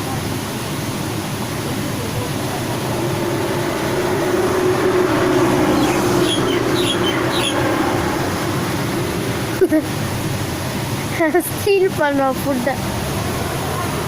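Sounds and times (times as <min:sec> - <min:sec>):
passing train rumble: 0:00.0 - 0:14.0
high falling bird chirps: 0:03.0 - 0:09.0.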